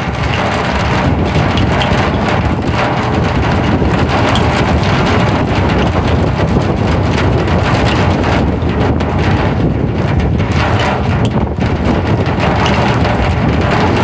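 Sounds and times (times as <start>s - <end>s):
deep rumble: 0.0s - 14.0s
rain pattering on drum heads: 0.0s - 14.0s.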